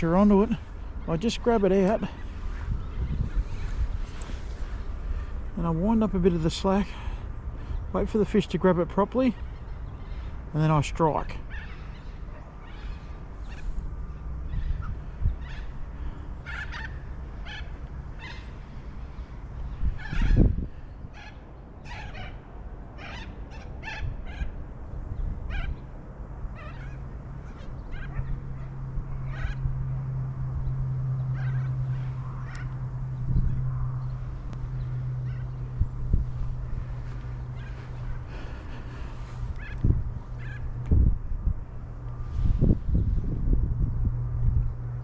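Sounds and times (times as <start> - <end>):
wind buffeting microphone: 0.0 - 8.0, 12.8 - 17.0, 19.6 - 21.8, 23.7 - 45.0
birds calling: 0.0 - 43.2
low hum: 9.4 - 45.0.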